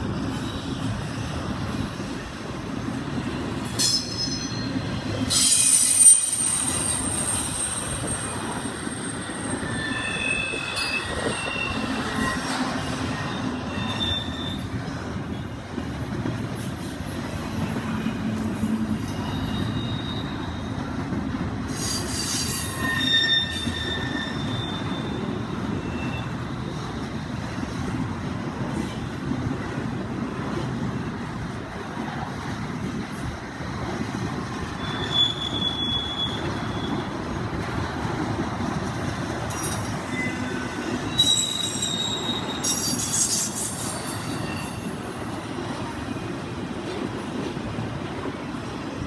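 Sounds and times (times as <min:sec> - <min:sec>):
train wheels rumbling on rail: 0:00.0 - 0:49.0
high-pitched wheel squeals: 0:03.8 - 0:15.5, 0:17.9 - 0:20.8, 0:21.7 - 0:27.0, 0:34.6 - 0:37.2, 0:39.5 - 0:45.0.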